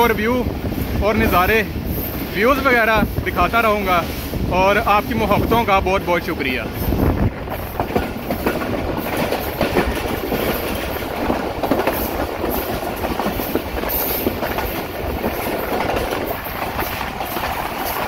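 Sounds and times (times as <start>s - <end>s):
train coach rumbling: 0.0s - 18.0s
wheels clacking over rail joints: 6.5s - 18.0s.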